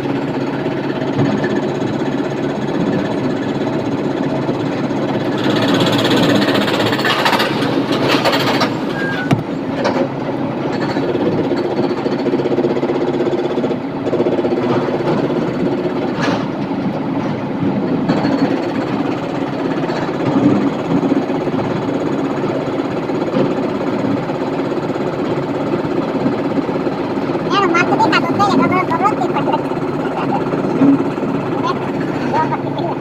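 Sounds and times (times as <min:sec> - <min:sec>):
heavy diesel engine under load: 0:00.0 - 0:33.0
sharp knocks: 0:09.3 - 0:10.0.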